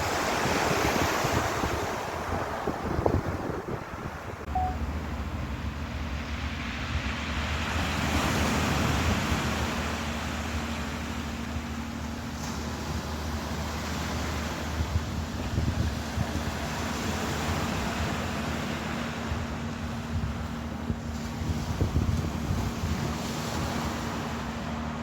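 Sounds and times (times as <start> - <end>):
ocean waves washing in: 0.0 - 25.0
wind buffeting microphone: 0.0 - 25.0
low steady hum: 4.5 - 7.8.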